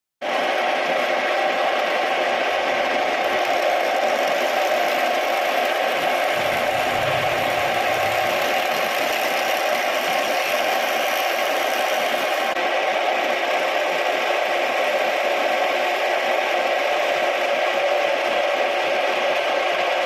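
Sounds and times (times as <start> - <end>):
low rumble: 6.3 - 9.6.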